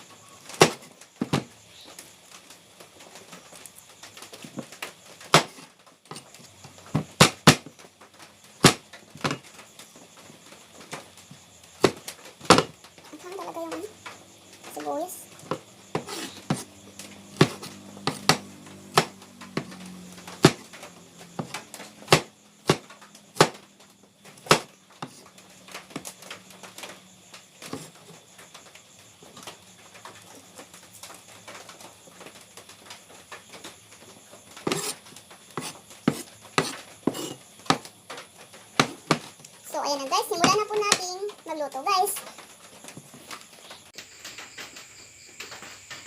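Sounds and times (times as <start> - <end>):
utensils knocking on cutting board: 17.4 - 19.7, 35.6 - 37.8.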